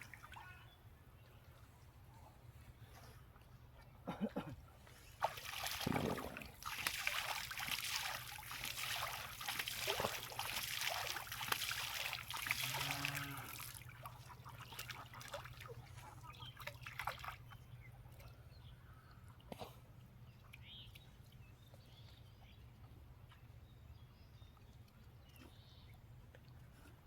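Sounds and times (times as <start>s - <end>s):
water trickling and splashing: 4.8s - 18.4s.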